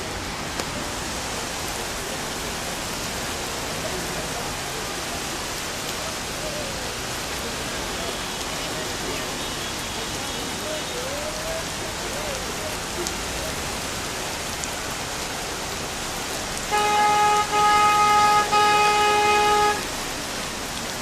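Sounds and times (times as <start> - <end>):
heavy rain falling: 0.0 - 21.0
car horn honking: 16.7 - 20.0.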